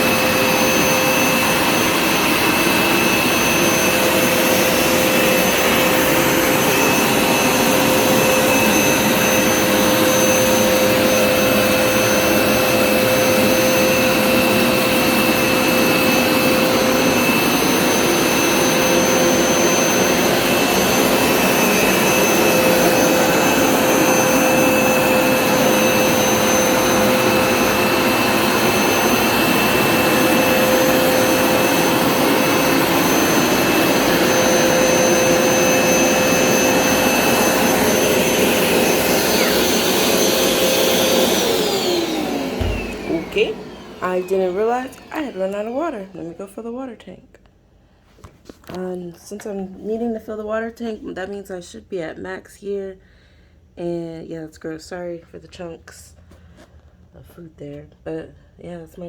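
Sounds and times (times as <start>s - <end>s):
carpet cleaner motor drone: 0.0s - 46.3s.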